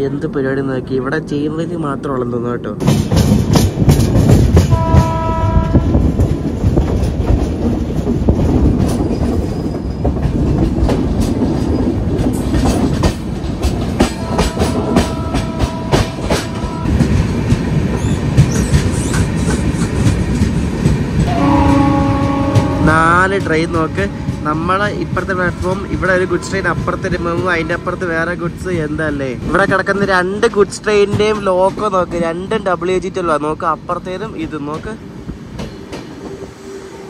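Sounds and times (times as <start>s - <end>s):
train wheels rumbling on rail: 0.0s - 37.0s
locomotive air horn: 4.7s - 6.0s, 14.2s - 16.9s, 21.3s - 25.7s.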